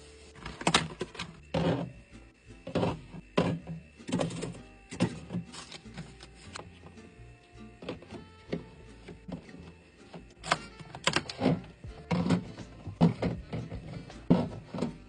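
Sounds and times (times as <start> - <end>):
drinks clattering in mini fridge: 10.4 - 15.0.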